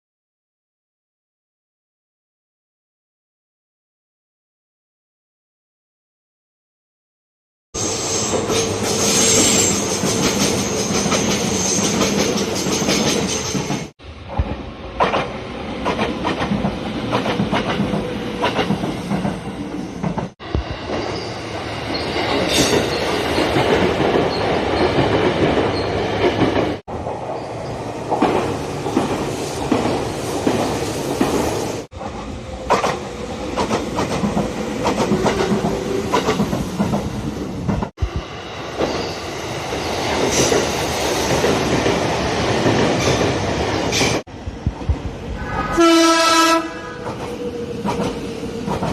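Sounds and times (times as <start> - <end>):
wheel squeal: 7.8 - 12.0
train wheels clicking over rail joints: 8.3 - 19.4, 28.1 - 38.2, 47.0 - 48.9.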